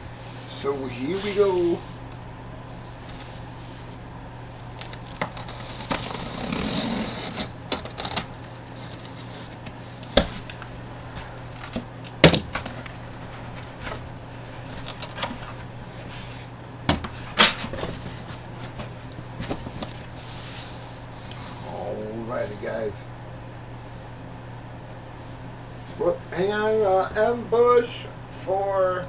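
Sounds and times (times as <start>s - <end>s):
packaging rustling: 0.1s - 21.7s
boxes clicking and knocking: 11.5s - 15.7s.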